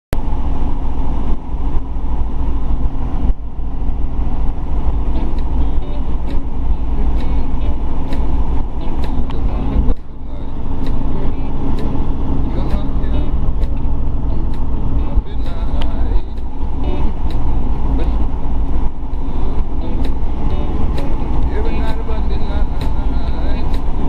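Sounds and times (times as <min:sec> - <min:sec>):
helicopter engine and rotors drone: 0:00.2 - 0:24.0.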